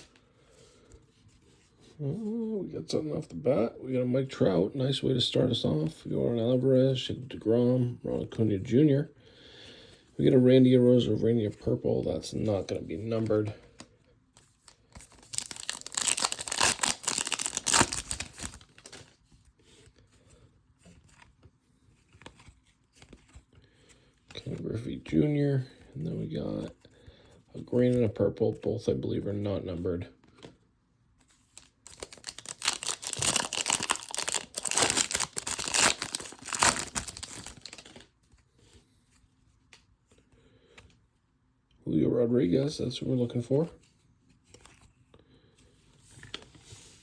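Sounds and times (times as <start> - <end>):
foil wrapper crackling: 15.0 - 19.0, 31.6 - 38.0.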